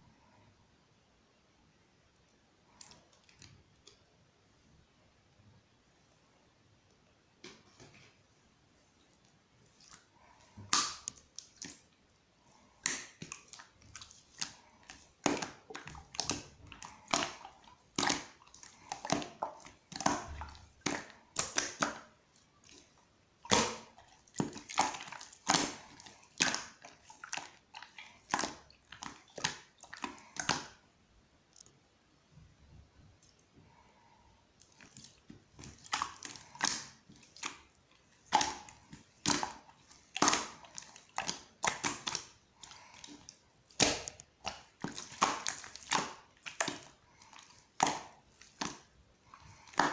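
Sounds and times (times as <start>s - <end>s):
slime crackling and squishing: 9.7s - 30.8s, 34.6s - 49.9s.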